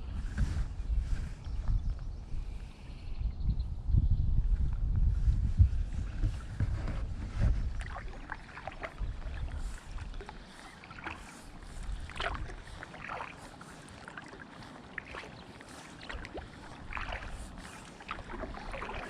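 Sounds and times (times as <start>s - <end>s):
wind rumble on microphone: 0.0s - 14.0s, 15.0s - 19.0s
paddle splashing water: 6.2s - 19.0s.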